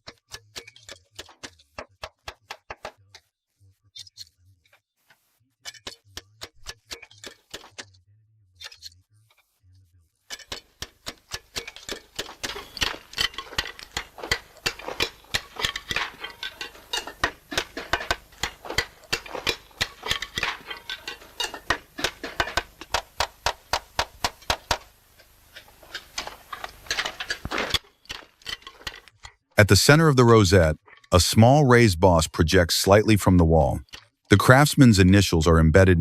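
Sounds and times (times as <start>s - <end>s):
hammer tapping on slate: 10.8s - 24.9s.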